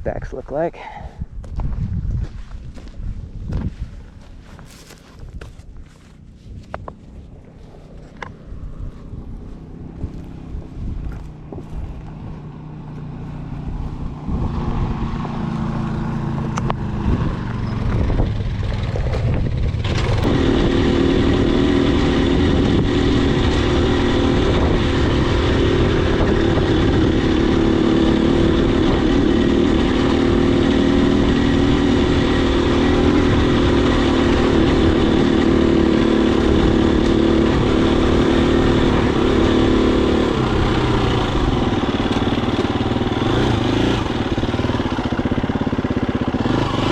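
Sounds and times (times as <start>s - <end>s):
dirt bike engine running: 0.9s - 46.9s.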